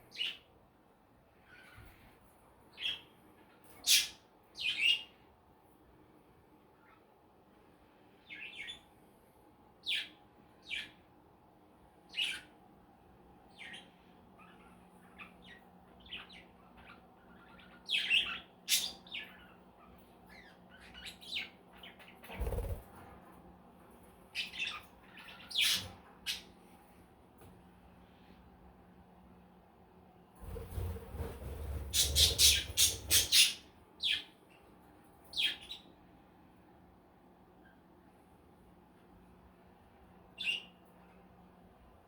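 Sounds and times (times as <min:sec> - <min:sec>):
budgerigars chirping: 0:31.9 - 0:34.2.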